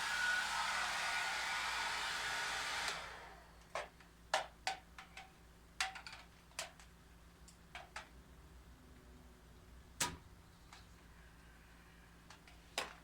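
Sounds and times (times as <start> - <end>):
hair dryer blowing: 0.0 - 3.6.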